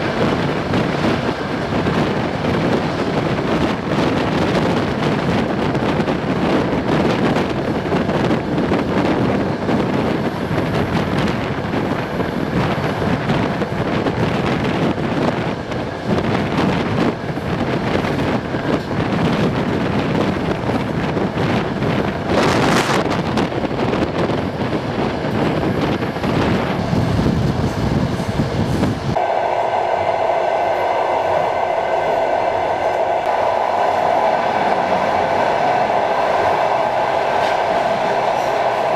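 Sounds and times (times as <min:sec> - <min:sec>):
train wheels rumbling on track: 0:00.0 - 0:38.9
loud rush: 0:29.1 - 0:38.9
high-pitched whine: 0:29.2 - 0:38.9.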